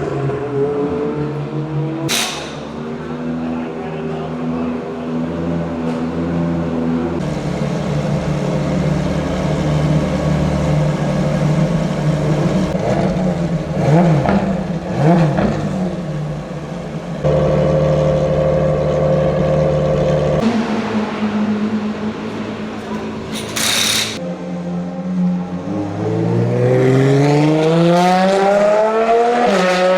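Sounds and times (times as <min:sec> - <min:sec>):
racing car engine running: 0:02.1 - 0:23.4.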